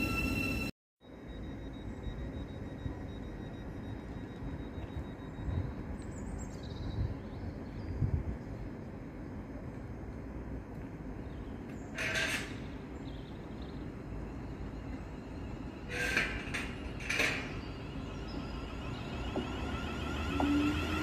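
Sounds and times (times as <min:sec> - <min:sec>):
train approaching: 0:00.0 - 0:06.0, 0:12.2 - 0:21.0.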